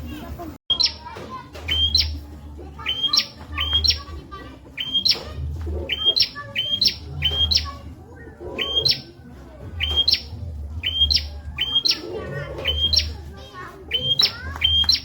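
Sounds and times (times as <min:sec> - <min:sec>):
bird two-part chirps: 0:01.7 - 0:02.2, 0:02.8 - 0:04.1, 0:04.8 - 0:07.8, 0:09.8 - 0:13.2, 0:13.9 - 0:15.0.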